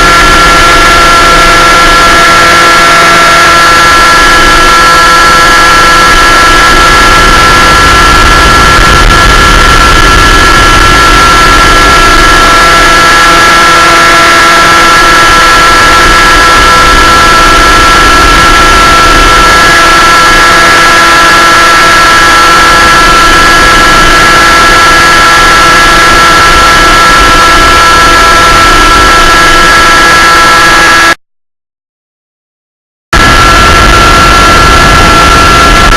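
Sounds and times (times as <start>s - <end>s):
small aircraft engine whine: 33.2s - 35.9s.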